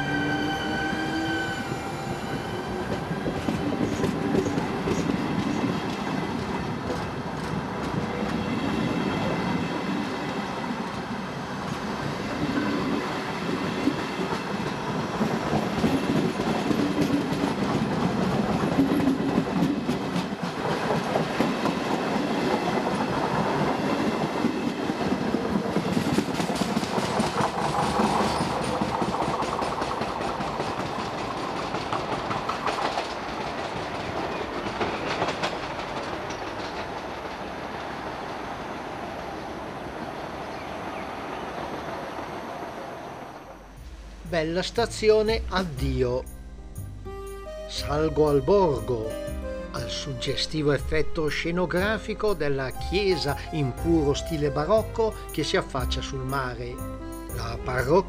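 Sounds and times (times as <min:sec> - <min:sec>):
electric locomotive whine: 0:00.0 - 0:44.7
train coaches rumbling past: 0:00.0 - 0:58.0
wheels clattering on rails: 0:13.4 - 0:38.3.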